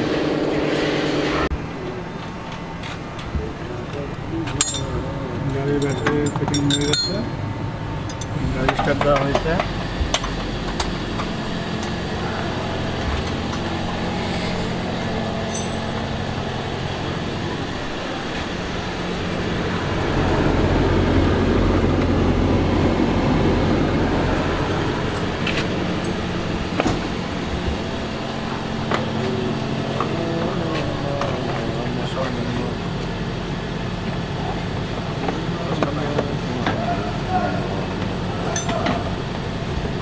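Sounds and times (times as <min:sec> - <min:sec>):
car engine idling: 0:00.0 - 0:38.5.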